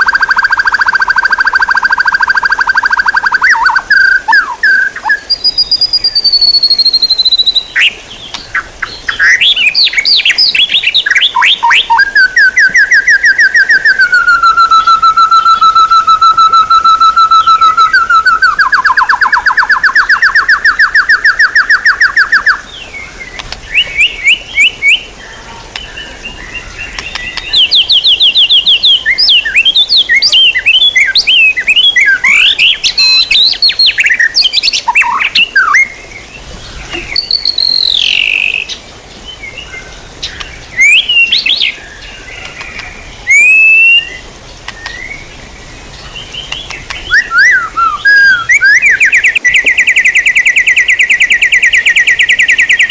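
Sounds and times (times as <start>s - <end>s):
songbird rattling trill: 0.0s - 22.6s, 26.8s - 35.9s, 36.9s - 38.8s
bird chirps and whistles: 0.0s - 22.7s, 23.7s - 25.1s, 27.0s - 35.9s, 36.9s - 38.8s, 40.2s - 41.8s, 42.5s - 45.2s, 46.5s - 52.9s.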